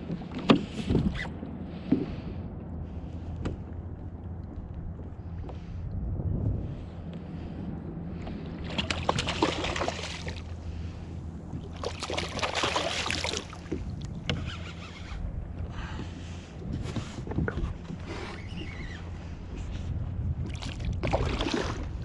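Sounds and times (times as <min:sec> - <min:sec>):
steady low hum: 0:00.0 - 0:22.0
water splashing against kayak: 0:08.4 - 0:19.0, 0:19.6 - 0:22.0.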